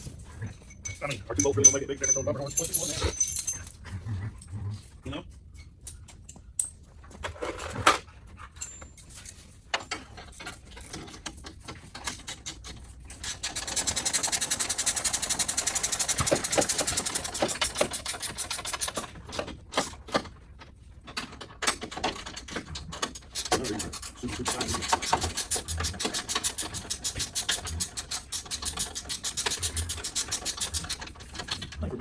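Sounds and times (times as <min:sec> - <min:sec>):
parts clicking and knocking: 0:00.0 - 0:03.8, 0:05.8 - 0:31.9
power tool rattling: 0:13.1 - 0:19.2, 0:21.8 - 0:31.7.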